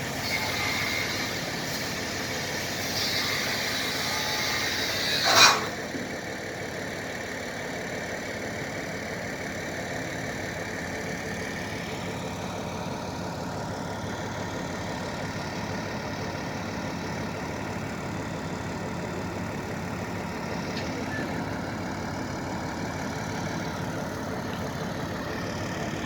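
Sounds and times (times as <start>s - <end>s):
heavy engine idling: 0.0s - 26.0s.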